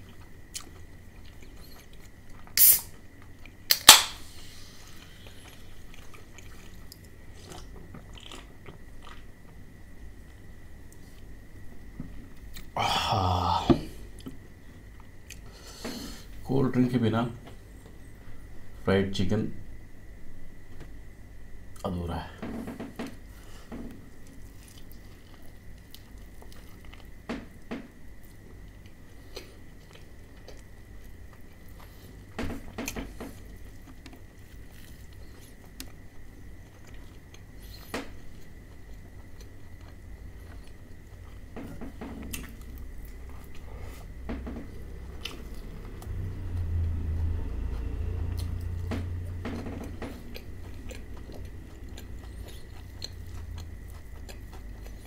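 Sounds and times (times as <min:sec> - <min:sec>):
crunching fried chicken: 0:04.8 - 0:09.6, 0:23.5 - 0:27.2, 0:28.2 - 0:55.0
wet chewing: 0:04.9 - 0:09.3, 0:49.4 - 0:55.0.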